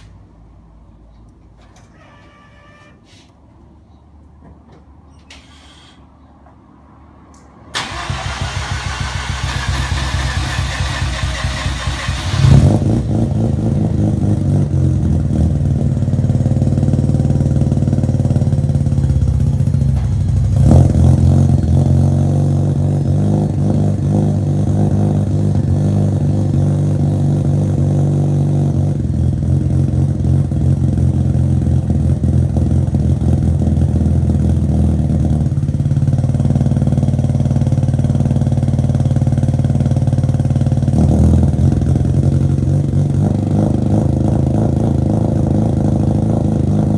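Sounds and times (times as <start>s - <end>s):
starter cranking engine: 7.8s - 12.6s.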